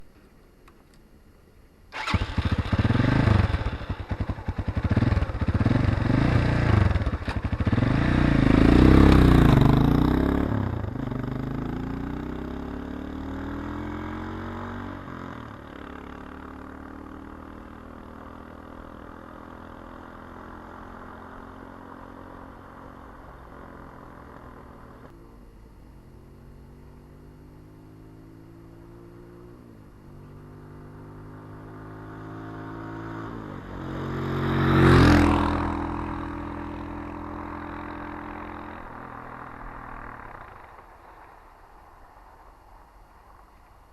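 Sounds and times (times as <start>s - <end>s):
motorcycle exhaust revving: 2.0s - 25.2s.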